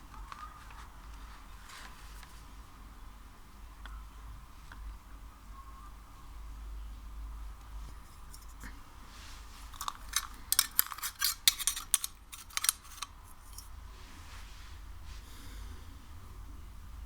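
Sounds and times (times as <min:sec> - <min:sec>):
faint soft rustle: 0:00.1 - 0:02.7, 0:07.7 - 0:10.1, 0:13.2 - 0:15.4.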